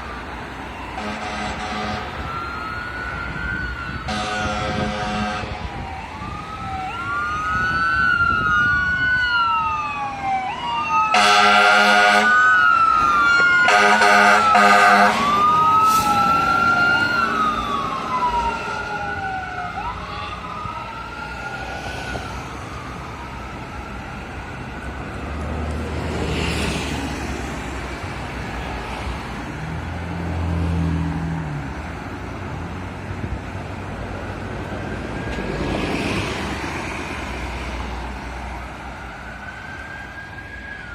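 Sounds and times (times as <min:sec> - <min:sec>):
fire truck siren wailing: 0:00.0 - 0:40.9
vehicles passing rumble: 0:00.0 - 0:40.9
air horn blasts: 0:01.0 - 0:02.2, 0:04.1 - 0:05.6, 0:11.1 - 0:12.4, 0:13.6 - 0:15.3.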